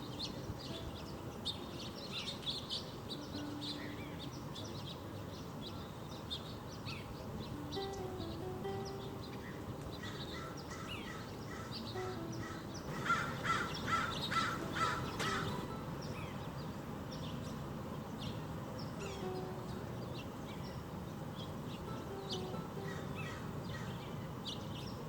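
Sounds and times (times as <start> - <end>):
birds chirping: 0.0 - 25.0
bird loud calls: 9.4 - 16.4.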